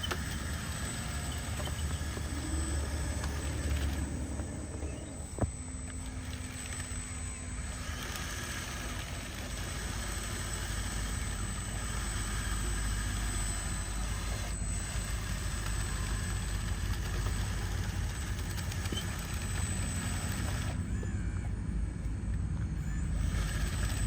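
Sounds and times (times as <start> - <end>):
motor running with whine: 0.0 - 24.0.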